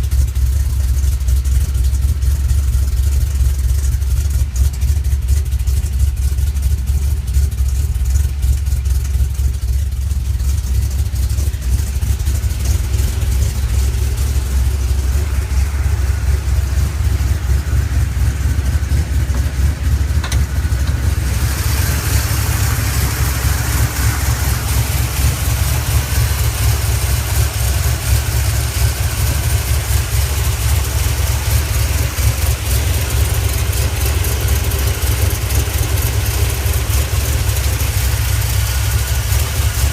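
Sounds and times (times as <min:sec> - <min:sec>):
car engine idling: 0:00.0 - 0:39.9
hiss: 0:21.2 - 0:27.9.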